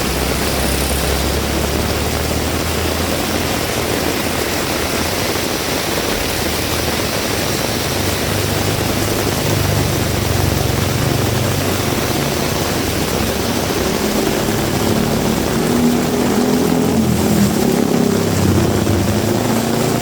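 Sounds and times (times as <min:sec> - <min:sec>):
engine running: 0:00.0 - 0:20.0
heavy rain falling: 0:00.0 - 0:20.0
motor vehicle passing: 0:00.0 - 0:20.0.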